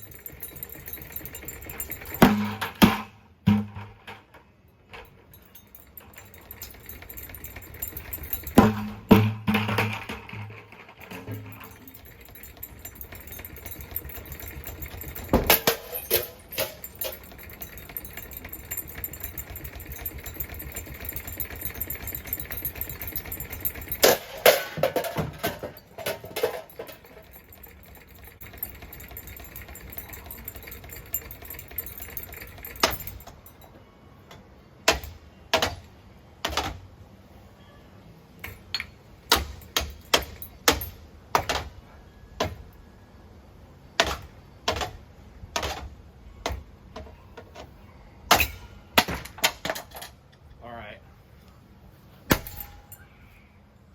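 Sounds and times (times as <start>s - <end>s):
ceiling fan rattling: 0.0s - 33.7s, 52.3s - 53.0s.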